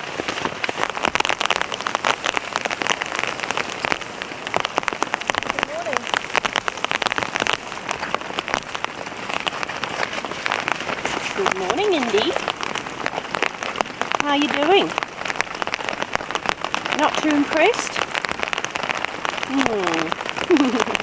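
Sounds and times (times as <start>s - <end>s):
heavy rain drumming on a tent: 0.0s - 21.0s.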